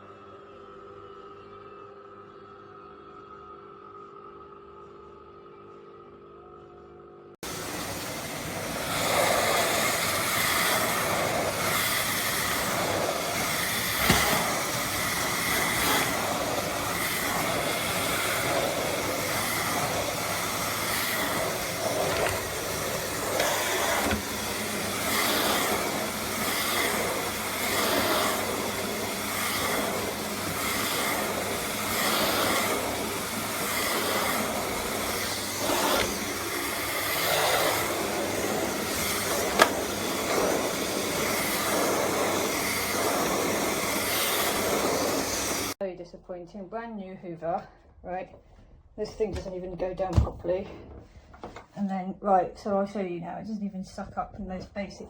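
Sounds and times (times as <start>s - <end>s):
vacuum cleaner running: 7.4s - 45.8s.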